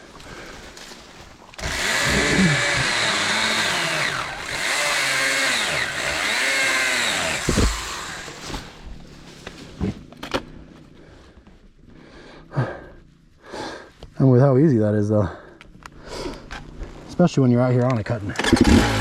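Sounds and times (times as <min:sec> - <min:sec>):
battery saw cutting brush: 0:01.6 - 0:08.8
short thump: 0:07.4 - 0:08.0.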